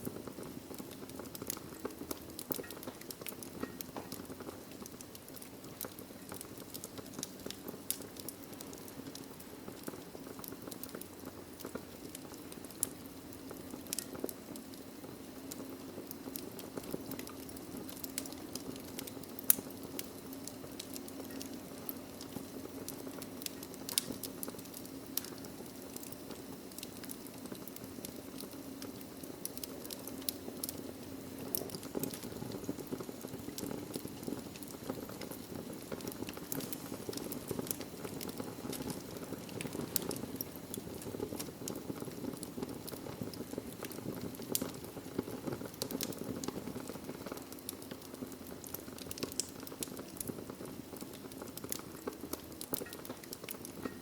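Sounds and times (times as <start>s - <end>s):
crackles and pops of burning logs: 0.0s - 54.0s
rush of fire flames: 0.0s - 54.0s.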